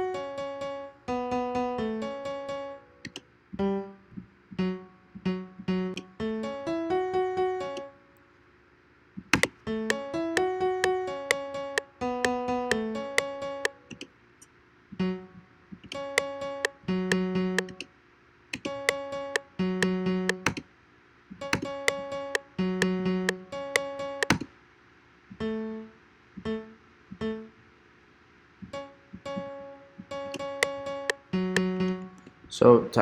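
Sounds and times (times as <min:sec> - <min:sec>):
plucky synth piano melody: 0:00.0 - 0:04.0, 0:04.6 - 0:08.0, 0:09.4 - 0:14.0, 0:15.0 - 0:17.8, 0:18.7 - 0:20.6, 0:21.5 - 0:24.5, 0:28.6 - 0:32.2.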